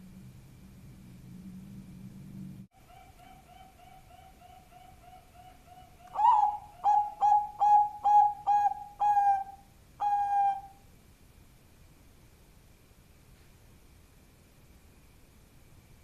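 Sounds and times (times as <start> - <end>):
dove cooing: 2.8 - 10.8.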